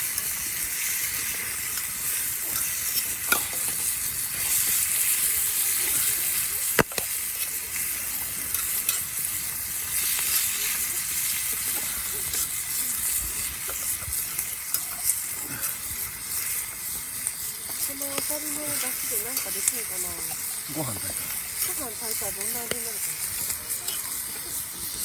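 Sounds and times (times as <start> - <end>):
food sizzling in a skillet: 0.0 - 25.0
spitting pops of frying: 0.0 - 25.0.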